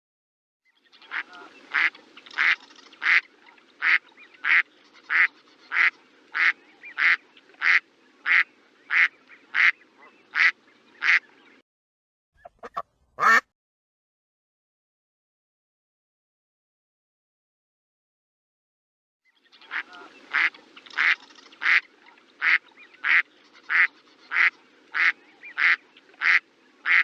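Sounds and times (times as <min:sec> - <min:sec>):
duck quacking: 0:01.1 - 0:11.2, 0:12.4 - 0:13.5, 0:19.7 - 0:27.0.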